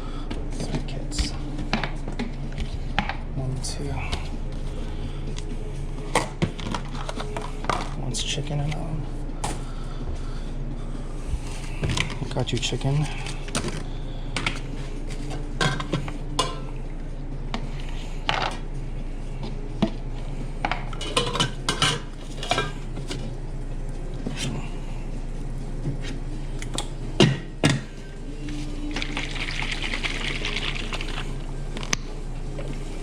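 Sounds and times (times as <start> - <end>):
steady low hum: 0.0 - 33.0
dishes and utensils clattering: 15.3 - 16.8, 20.6 - 23.2.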